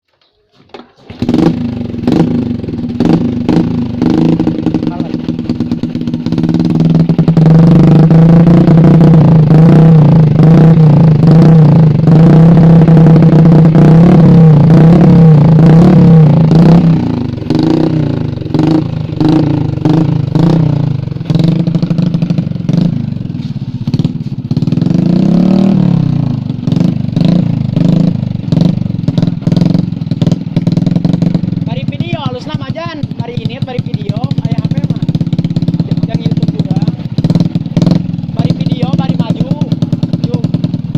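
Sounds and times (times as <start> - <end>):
motorcycle engine revving: 0.7 - 40.9.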